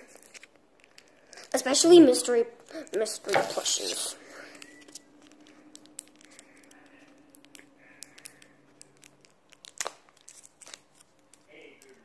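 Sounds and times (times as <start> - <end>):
plastic crinkling: 0.0 - 12.0
plastic packaging clicks: 4.5 - 12.0.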